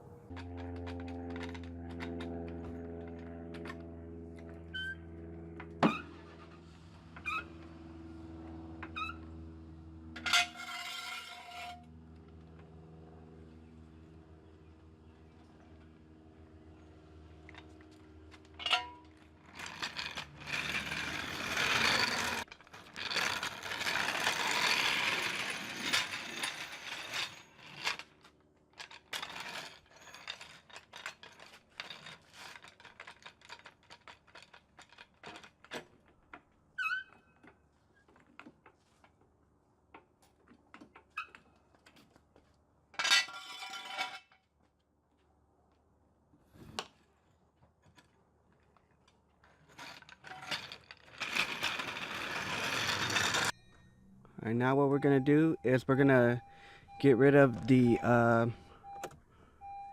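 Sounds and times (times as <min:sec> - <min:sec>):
loud scrape: 0:10.2 - 0:11.8, 0:18.8 - 0:27.9, 0:49.8 - 0:53.6.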